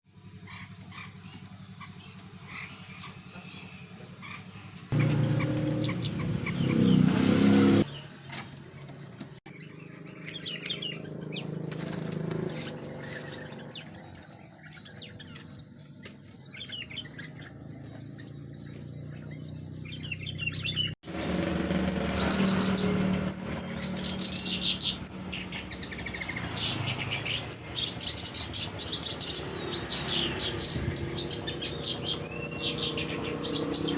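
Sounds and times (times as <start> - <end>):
birds chirping: 0.1 - 33.9
birds fluttering wings: 8.2 - 19.8, 21.1 - 27.4.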